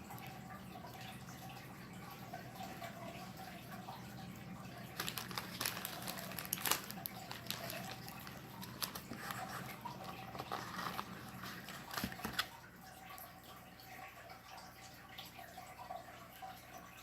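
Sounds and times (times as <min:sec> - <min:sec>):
person chewing food: 0:05.0 - 0:12.5.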